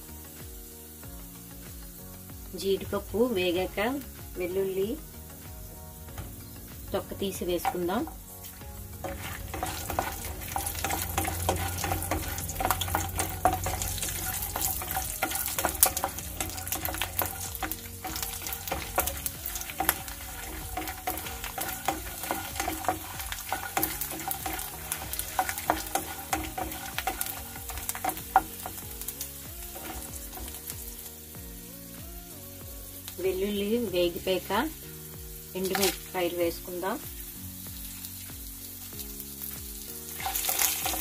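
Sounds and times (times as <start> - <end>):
nuts sizzling in hot oil: 0.0 - 41.0
wooden spatula scraping pan: 7.3 - 30.8, 40.2 - 41.0.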